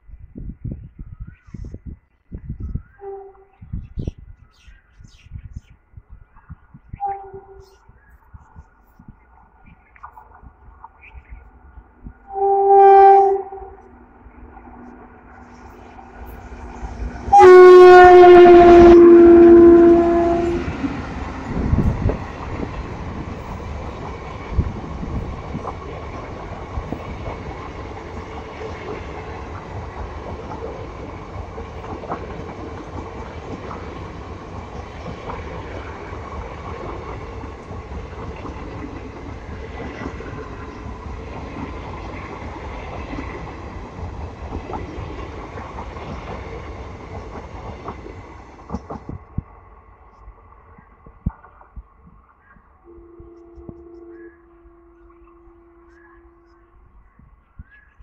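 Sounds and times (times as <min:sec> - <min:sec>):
train horn blast: 0:03.0 - 0:03.6, 0:07.0 - 0:07.8, 0:12.2 - 0:14.0, 0:14.8 - 0:21.0, 0:52.8 - 0:56.8
train wheels rumbling on rails: 0:08.4 - 0:54.3
train knocks: 0:12.2 - 0:49.5.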